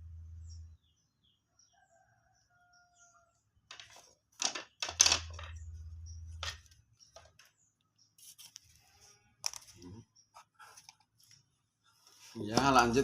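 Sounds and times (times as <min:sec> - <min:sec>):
low hum: 0:00.0 - 0:00.9, 0:05.2 - 0:06.6
bird cage parts clicking and rattling: 0:03.7 - 0:05.6.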